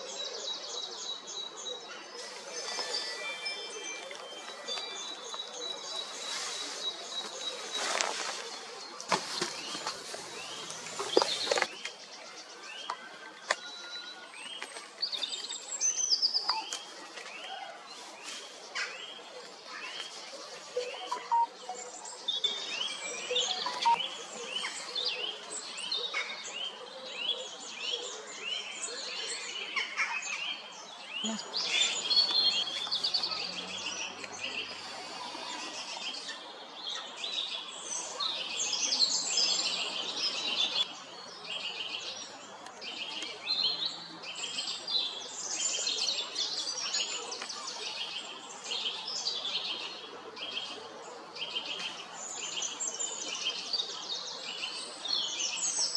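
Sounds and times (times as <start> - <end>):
songbirds chorus: 0.0 - 55.9.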